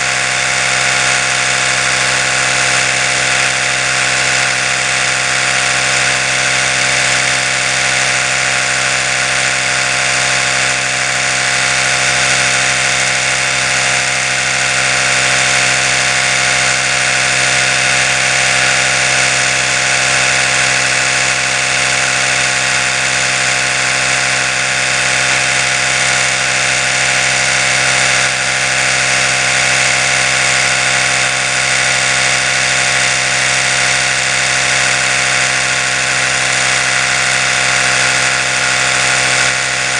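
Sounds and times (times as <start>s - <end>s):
electric toothbrush buzzing: 0.0s - 39.9s.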